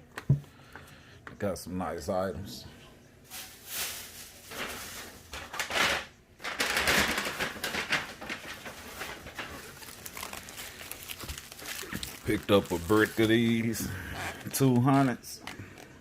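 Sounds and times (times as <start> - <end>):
packaging rustling and crinkling: 3.3 - 16.0.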